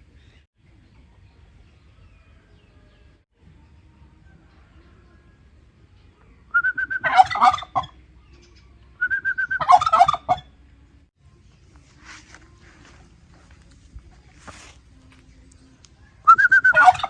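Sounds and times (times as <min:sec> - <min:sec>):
turkey gobbling: 0:06.5 - 0:10.6, 0:16.3 - 0:17.0.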